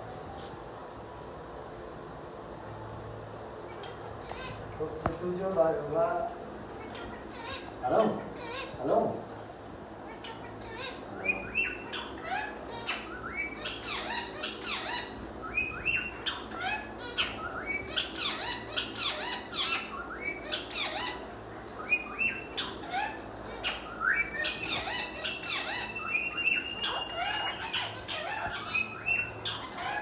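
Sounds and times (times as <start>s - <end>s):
parrots squawking and chirping: 3.7s - 5.2s, 6.6s - 30.0s
parrot whistle: 21.8s - 30.0s.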